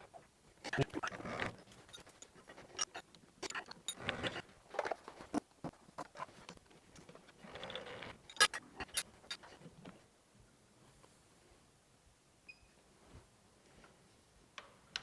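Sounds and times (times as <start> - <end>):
metal tools clicking and clinking: 0.8 - 4.4, 7.7 - 9.4
soft rustle: 12.8 - 14.4.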